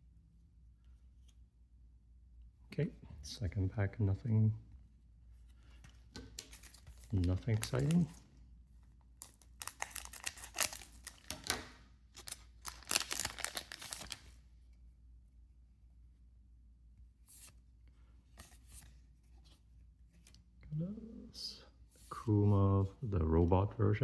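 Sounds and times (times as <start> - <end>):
cards clicking being handled: 5.8 - 8.1
foil pack tearing and rustling: 9.6 - 14.3.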